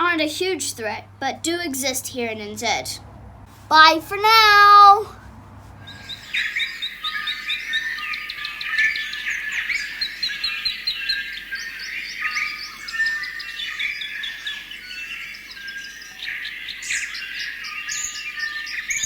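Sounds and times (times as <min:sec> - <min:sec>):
songbirds chirping and singing: 0:05.9 - 0:19.0.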